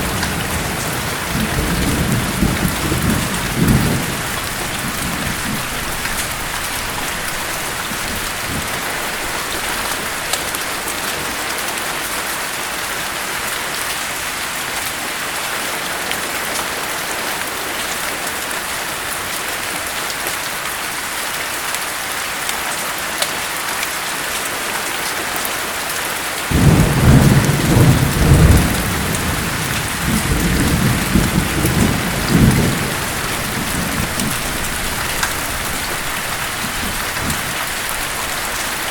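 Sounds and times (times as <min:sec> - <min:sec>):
thunder rumbling: 0:00.0 - 0:10.3, 0:26.5 - 0:38.9
steady rain: 0:00.0 - 0:38.9.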